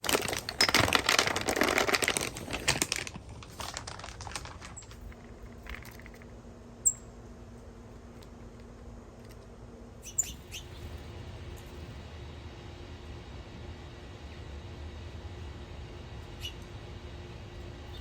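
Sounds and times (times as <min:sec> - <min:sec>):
crackling rustling noise: 0:00.0 - 0:06.4
small bird chirps: 0:06.8 - 0:07.1, 0:10.0 - 0:10.9, 0:16.4 - 0:16.6.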